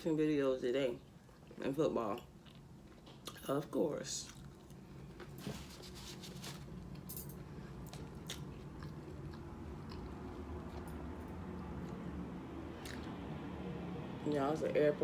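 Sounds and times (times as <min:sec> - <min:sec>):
chewing and biting food: 0:04.2 - 0:05.5, 0:07.7 - 0:12.2, 0:12.8 - 0:13.2
airplane drone overhead: 0:07.0 - 0:15.0.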